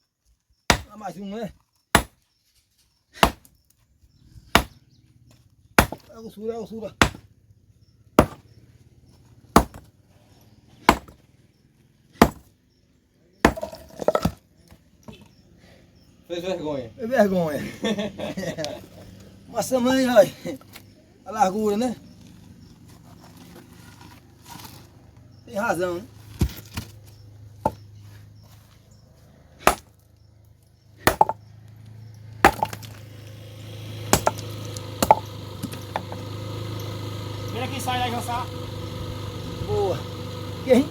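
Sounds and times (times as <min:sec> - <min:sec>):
hard objects striking stone: 0:00.7 - 0:00.9, 0:02.0 - 0:02.2, 0:03.2 - 0:03.5, 0:04.5 - 0:04.8, 0:05.8 - 0:06.1, 0:07.0 - 0:07.3, 0:08.2 - 0:08.5, 0:09.6 - 0:09.9, 0:10.8 - 0:11.2, 0:12.2 - 0:12.5, 0:13.4 - 0:14.4, 0:29.6 - 0:29.9, 0:31.0 - 0:31.5, 0:32.4 - 0:33.0, 0:34.1 - 0:36.2.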